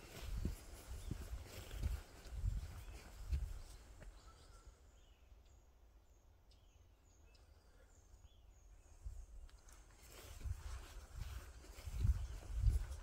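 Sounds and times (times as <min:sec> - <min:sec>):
footstep on dirt: 0:00.0 - 0:04.2, 0:09.6 - 0:13.0
outdoor background noise: 0:00.0 - 0:13.0
bird chirping: 0:00.1 - 0:09.8.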